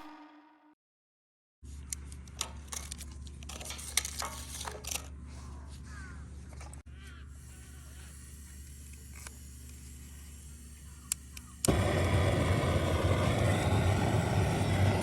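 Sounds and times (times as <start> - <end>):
steady low rumble: 11.7 - 15.0.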